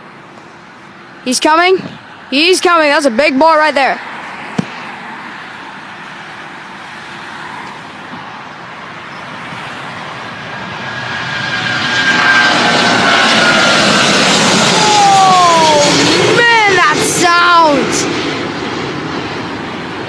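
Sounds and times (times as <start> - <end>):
jet engines at takeoff: 0.0 - 20.0.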